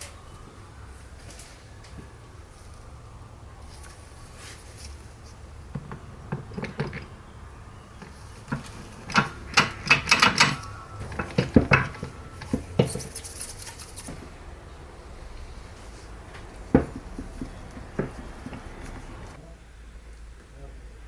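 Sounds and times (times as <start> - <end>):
metal parts clinking: 8.0 - 14.2.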